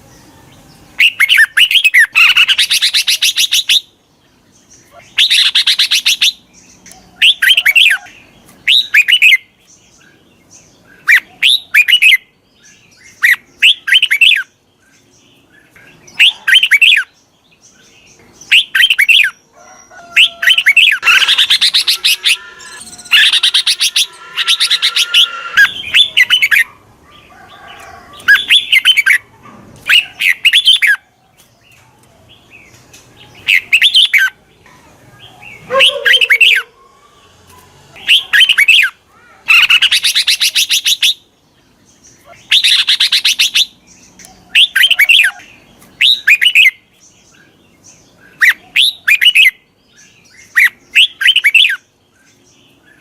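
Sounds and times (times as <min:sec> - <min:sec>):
bulbul singing whistled phrases: 0:20.2 - 0:26.7, 0:38.0 - 0:41.2, 0:42.2 - 0:46.8, 0:50.4 - 0:51.9.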